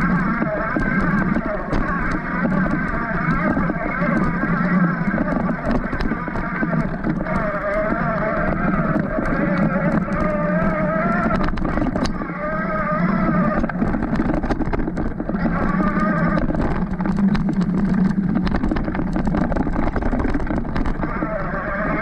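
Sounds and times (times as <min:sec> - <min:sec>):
bike clicks and knocks: 0:00.0 - 0:22.0
electric bike motor whining: 0:00.0 - 0:22.0.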